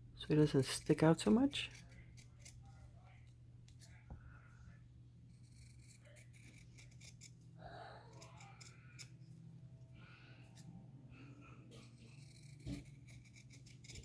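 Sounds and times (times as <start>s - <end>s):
scissors snipping: 5.6s - 7.4s.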